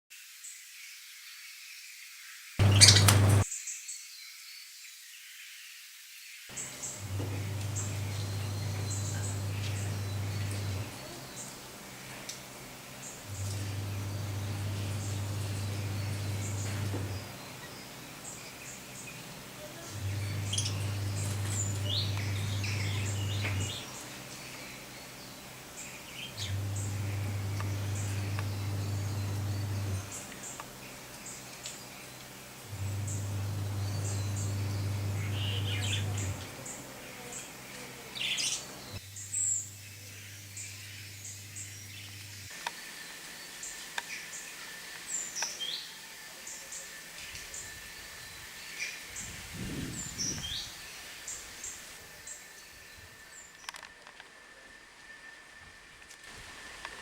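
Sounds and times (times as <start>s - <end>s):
lovebirds chirping: 2.6s - 3.4s, 6.6s - 12.2s, 13.1s - 32.0s, 32.7s - 42.5s
low steady hum: 6.8s - 11.3s, 13.2s - 18.0s, 19.8s - 24.4s, 26.3s - 30.4s, 32.6s - 36.6s.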